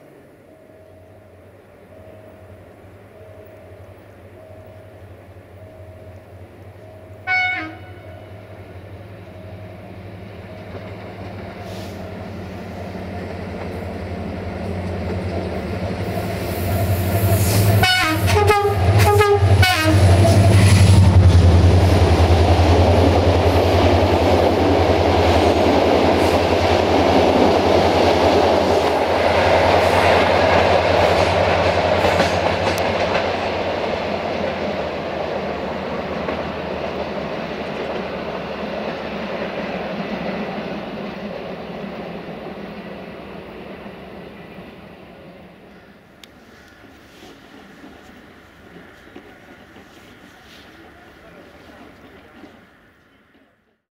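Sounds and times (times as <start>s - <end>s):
coaches rumbling and wheel clatter: 0.0s - 53.8s
diesel locomotive engine hum: 0.0s - 53.8s
train horn blasts: 7.2s - 8.5s, 17.4s - 21.2s.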